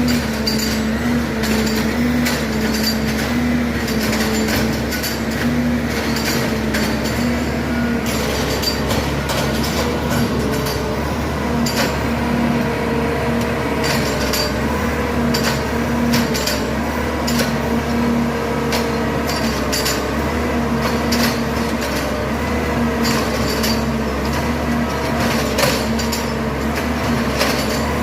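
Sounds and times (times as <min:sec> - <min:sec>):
sharp metallic clanks: 0:00.0 - 0:11.0, 0:13.8 - 0:17.6
machine engine running: 0:00.0 - 0:28.0.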